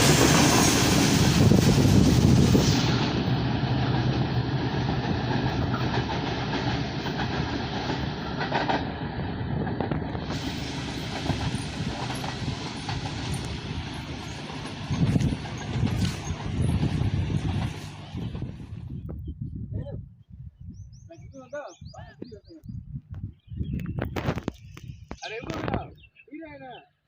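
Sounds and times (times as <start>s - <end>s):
train wheels clickety-clack: 0.0s - 18.8s
train rumble: 0.0s - 19.2s.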